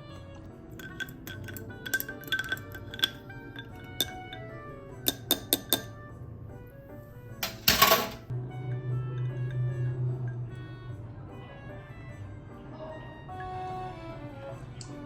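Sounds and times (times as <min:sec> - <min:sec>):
background music: 0:00.0 - 0:15.0
spoon clinking against cup: 0:00.3 - 0:06.0.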